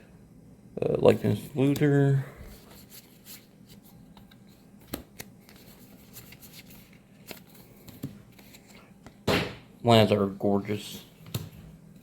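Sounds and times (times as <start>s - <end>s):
cards rustling: 1.2s - 9.2s.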